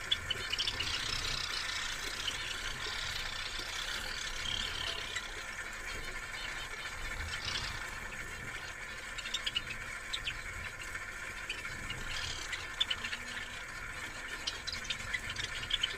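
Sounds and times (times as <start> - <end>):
pet birds chirping: 0.0 - 15.9.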